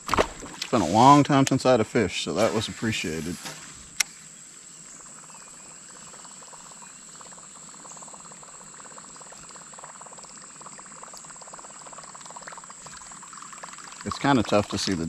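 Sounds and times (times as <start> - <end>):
insects buzzing and trilling: 0.0 - 15.0.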